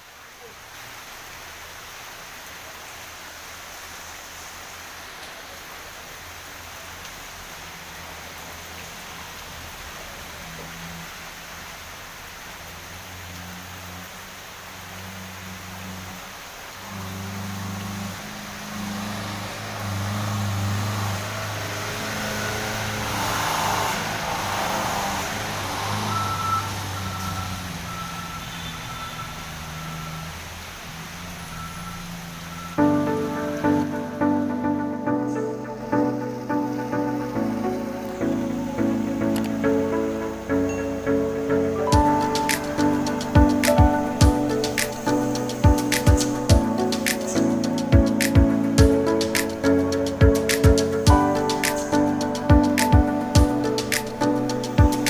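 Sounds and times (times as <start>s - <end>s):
steady hiss: 0.0s - 55.0s
truck engine humming: 4.3s - 55.0s
reversing alarm beeping: 26.0s - 30.4s, 31.4s - 33.1s.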